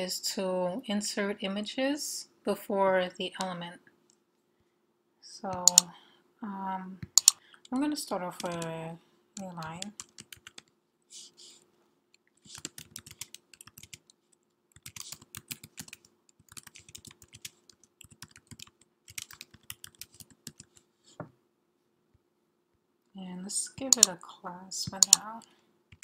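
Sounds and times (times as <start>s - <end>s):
typing on computer keyboard: 5.6s - 5.9s, 7.0s - 7.8s, 8.4s - 8.7s, 9.4s - 10.7s, 12.4s - 20.8s, 23.8s - 24.1s, 24.9s - 25.2s.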